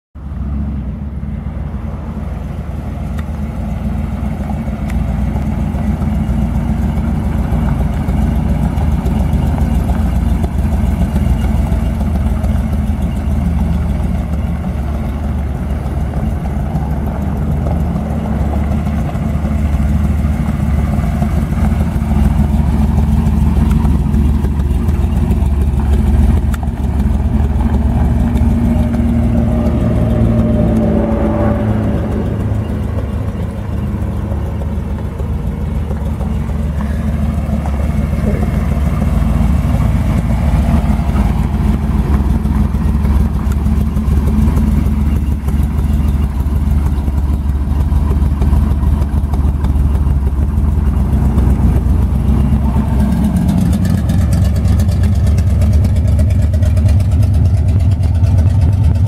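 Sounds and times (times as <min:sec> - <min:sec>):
deep car engine idling: 0:00.2 - 0:59.0.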